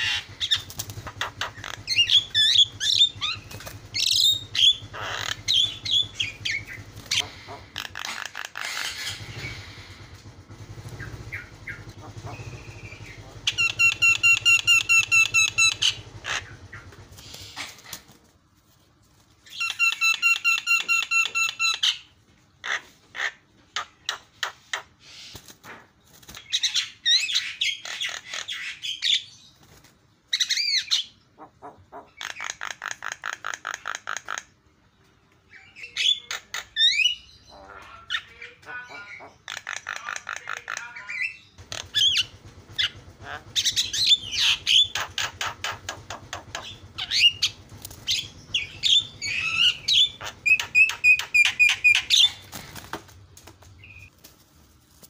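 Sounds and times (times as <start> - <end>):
bird singing varied calls: 0.0 - 10.0, 10.7 - 17.8, 19.4 - 22.2, 35.4 - 52.7.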